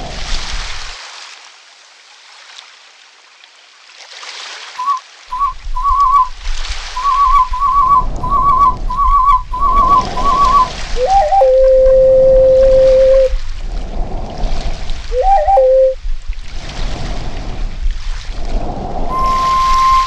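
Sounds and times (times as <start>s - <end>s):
warbling whistle trills: 4.8s - 6.3s, 7.0s - 13.4s, 15.1s - 16.0s, 19.1s - 20.0s
low rumble: 7.4s - 20.0s.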